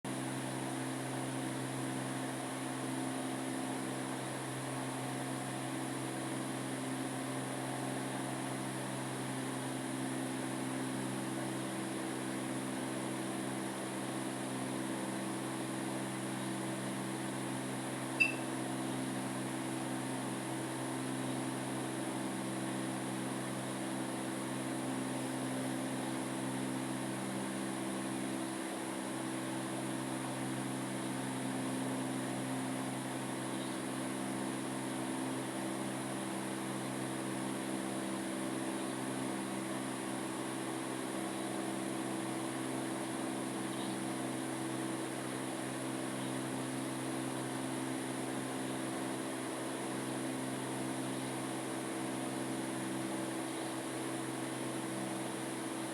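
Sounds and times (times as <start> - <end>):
machine hum with low tones: 11.4 - 55.9
high-pitched blip: 18.2 - 18.4.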